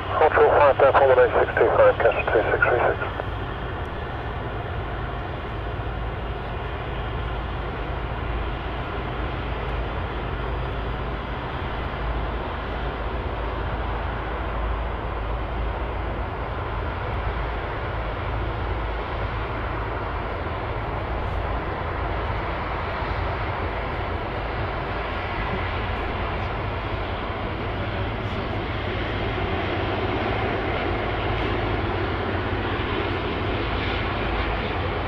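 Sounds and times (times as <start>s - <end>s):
jet airliner engine rumble: 0.0s - 35.0s.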